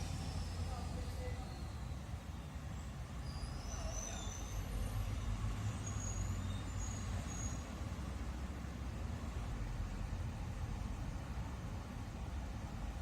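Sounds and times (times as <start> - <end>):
faint high-pitched squeals: 0.0 - 7.7
low rumble with hiss: 0.0 - 13.0.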